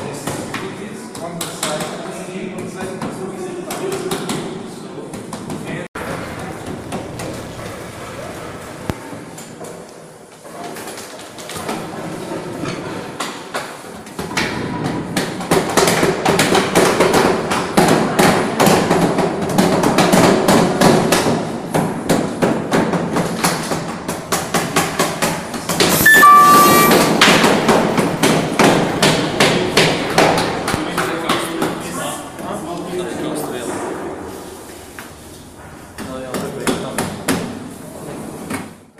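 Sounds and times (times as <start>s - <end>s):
brief high squeal: 25.9s - 27.1s.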